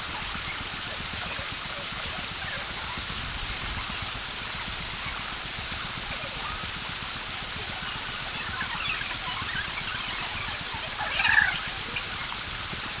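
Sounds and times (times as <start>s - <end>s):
stream and waterfall rushing: 0.0s - 13.0s.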